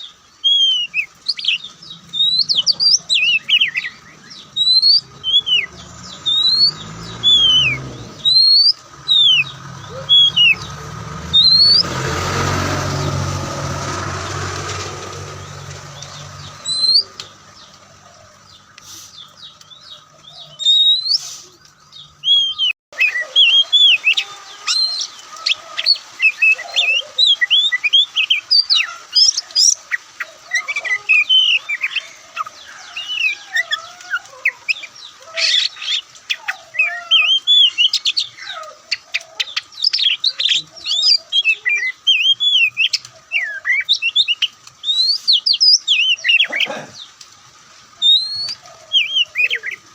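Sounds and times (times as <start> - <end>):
bird singing whistles and chirps: 0.0 - 11.9, 15.5 - 17.7, 18.6 - 29.8, 34.7 - 46.5, 48.0 - 49.8.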